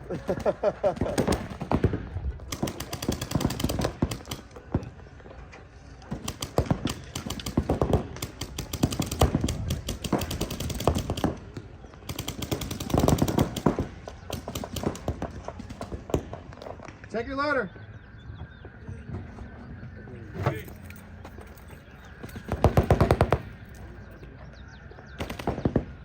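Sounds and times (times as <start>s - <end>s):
paintball markers firing: 6.0s - 17.1s, 21.4s - 24.1s.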